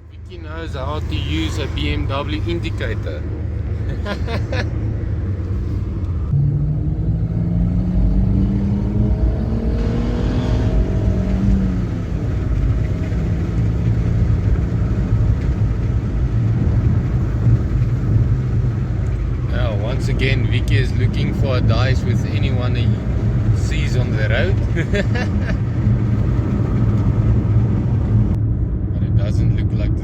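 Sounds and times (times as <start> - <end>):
car engine accelerating: 0.0 - 28.4.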